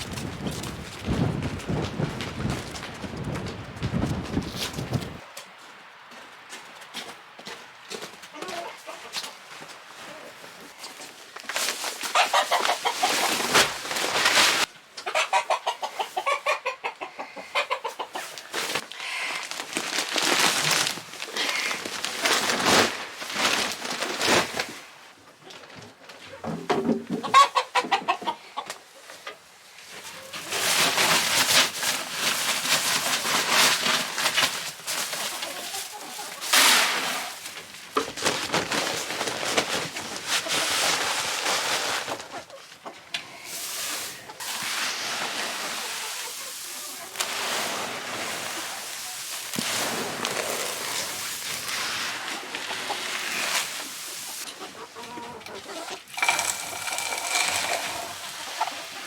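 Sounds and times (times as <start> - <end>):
chickens clucking: 8.3 - 9.5, 12.0 - 14.1, 15.0 - 18.6, 26.2 - 30.5, 35.0 - 36.7, 42.1 - 59.0.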